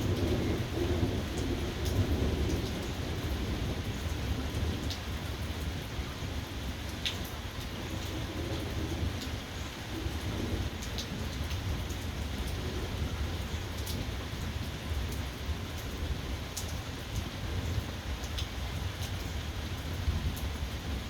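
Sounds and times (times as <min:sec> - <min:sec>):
thunder rumbling: 0:00.0 - 0:04.8
steady rain falling: 0:00.0 - 0:21.0.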